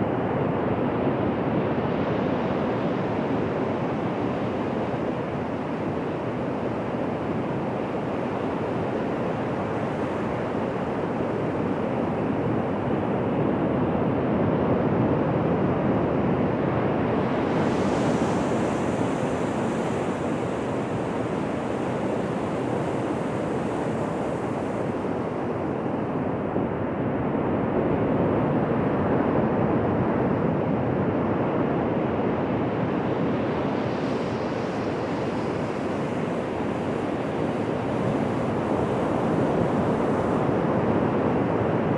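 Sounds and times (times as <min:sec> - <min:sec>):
ocean waves on a beach: 0:00.0 - 0:13.2, 0:16.4 - 0:26.6, 0:32.2 - 0:41.9.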